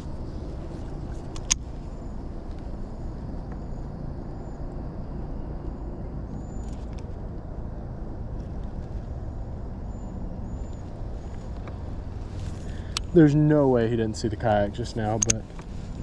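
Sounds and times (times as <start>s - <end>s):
faint high bird chirps: 3.0s - 7.0s, 9.2s - 11.8s.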